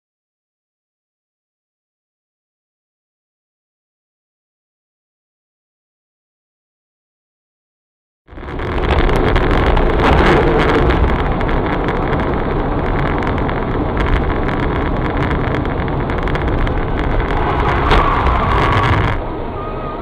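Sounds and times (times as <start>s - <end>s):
small clicks and rattles: 8.3s - 19.2s
car engine and road rumble: 8.3s - 20.0s
wind: 8.3s - 20.0s.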